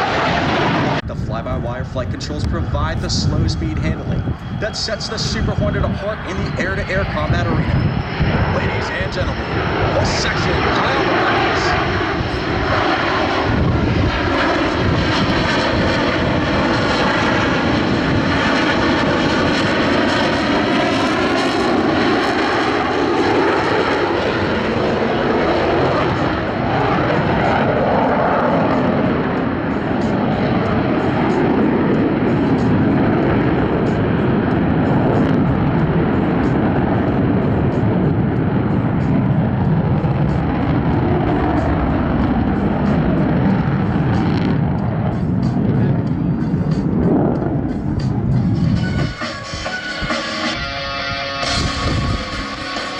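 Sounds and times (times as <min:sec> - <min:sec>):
jet aircraft flying past: 0:00.0 - 0:52.9.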